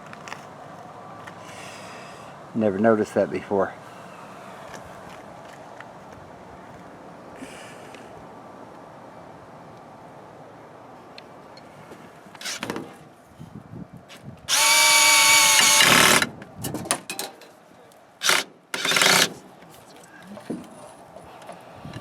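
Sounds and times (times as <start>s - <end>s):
power drill driving screws: 12.4s - 12.7s, 14.5s - 16.3s, 18.2s - 19.4s.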